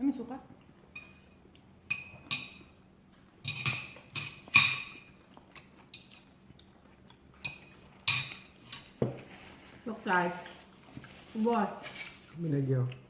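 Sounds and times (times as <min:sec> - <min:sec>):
cutlery clinking on plates: 0:00.9 - 0:02.8, 0:03.4 - 0:05.2, 0:07.4 - 0:09.3.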